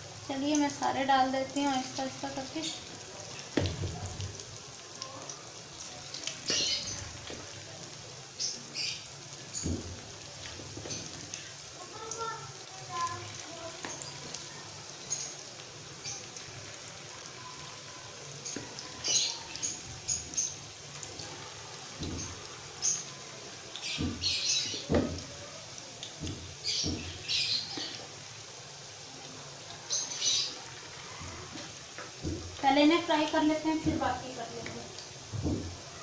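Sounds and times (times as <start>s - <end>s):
batter frying in hot oil: 0.0s - 36.0s
spoon knocking in pan: 3.4s - 4.4s, 6.1s - 7.6s, 9.5s - 11.4s, 18.4s - 23.1s, 23.8s - 25.4s, 26.1s - 28.2s, 31.2s - 35.9s.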